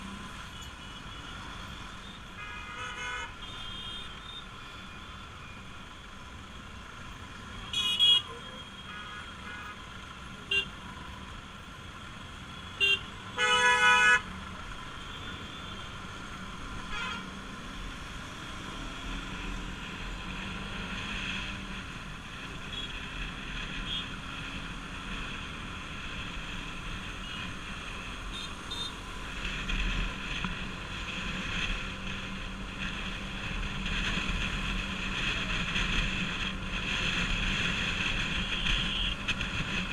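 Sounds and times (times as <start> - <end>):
motorcycle engine riding: 14.3 - 39.9.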